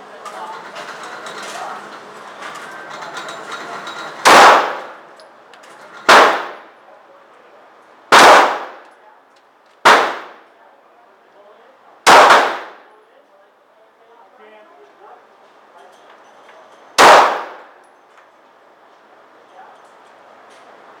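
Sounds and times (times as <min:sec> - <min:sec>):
pistol shots: 0:04.2 - 0:05.0, 0:06.1 - 0:06.7, 0:08.1 - 0:08.9, 0:09.8 - 0:10.4, 0:12.1 - 0:12.8, 0:17.0 - 0:17.7.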